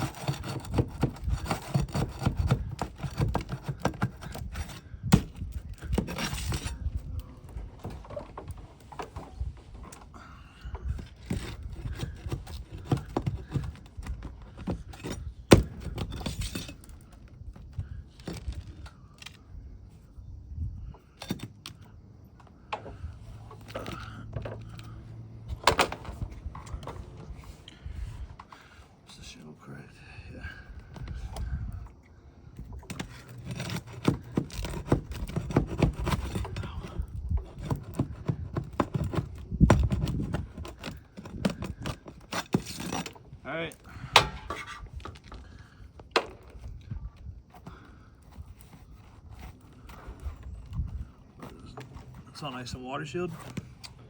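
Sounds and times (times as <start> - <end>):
pry bar clicking and scraping: 0.0 - 19.6, 20.9 - 28.7, 30.7 - 52.2
metal taps and scrapes: 44.1 - 45.4.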